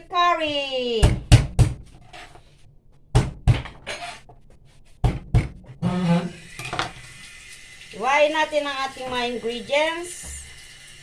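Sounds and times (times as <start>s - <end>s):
kitchen things knocking on worktop: 3.2s - 4.2s.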